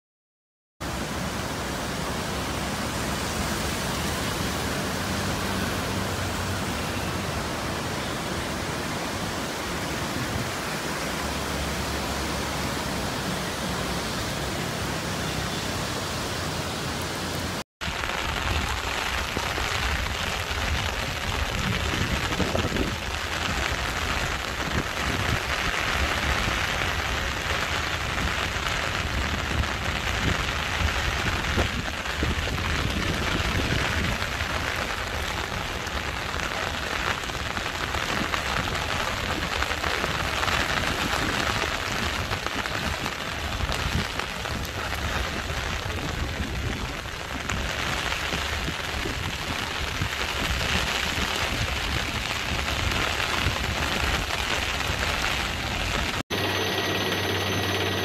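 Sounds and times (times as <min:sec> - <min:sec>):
churning floodwater: 0:00.8 - 0:58.0
heavy rain falling: 0:00.8 - 0:58.0
wind: 0:00.8 - 0:58.0.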